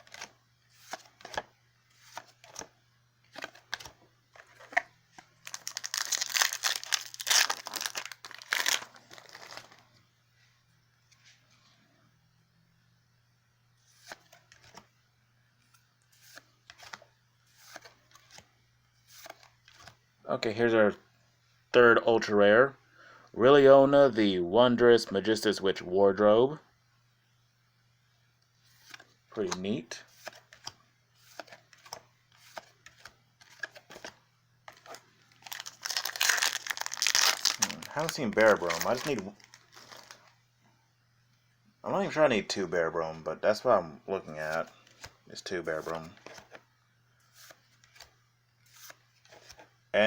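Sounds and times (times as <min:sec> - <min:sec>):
cards rustling and clicking: 0:00.0 - 0:02.7, 0:03.3 - 0:09.8, 0:13.9 - 0:14.8, 0:15.6 - 0:20.0, 0:28.7 - 0:40.3, 0:44.4 - 0:46.6, 0:47.2 - 0:49.7
foil wrapper crinkling and tearing: 0:05.4 - 0:09.8, 0:34.7 - 0:40.3.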